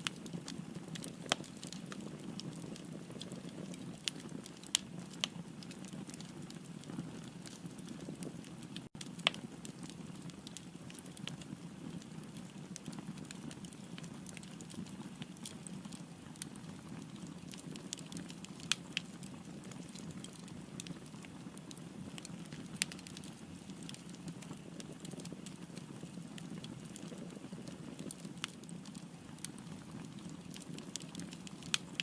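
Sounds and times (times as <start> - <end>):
wood fire crackling: 0.0 - 32.0.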